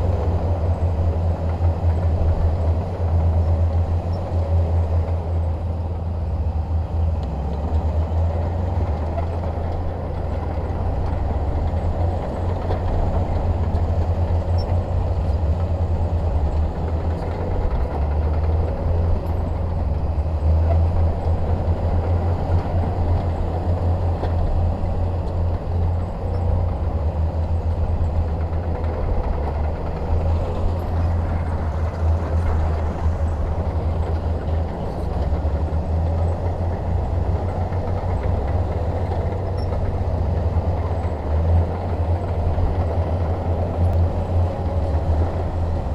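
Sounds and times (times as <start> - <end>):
bulldozer diesel engine droning: 0.0 - 45.9.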